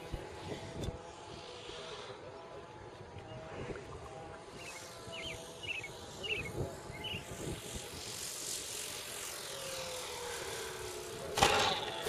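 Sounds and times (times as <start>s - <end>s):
model airplane propeller drone: 0.0s - 12.0s.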